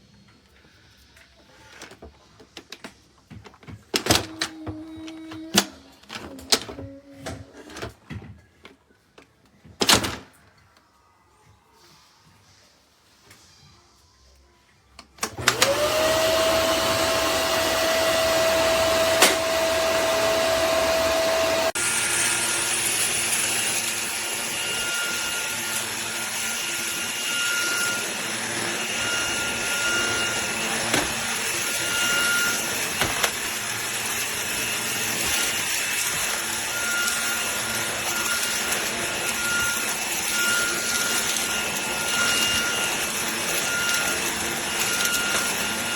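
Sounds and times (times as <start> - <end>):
cordless vacuum running: 15.2 - 45.9
vacuum motor whine: 15.2 - 45.9.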